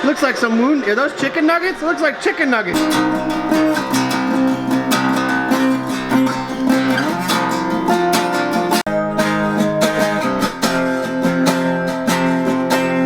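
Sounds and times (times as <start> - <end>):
strummed acoustic guitar music: 2.8 - 13.0.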